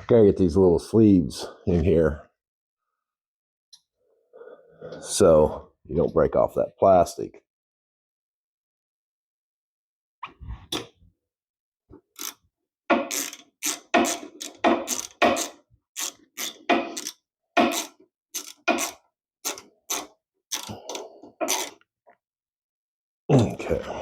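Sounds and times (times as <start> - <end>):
hand ratchet clicking: 12.2 - 21.8.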